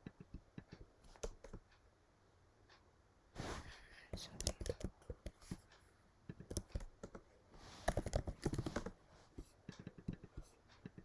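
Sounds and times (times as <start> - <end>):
computer keyboard typing: 0.0 - 1.7, 4.2 - 5.6, 6.3 - 9.0.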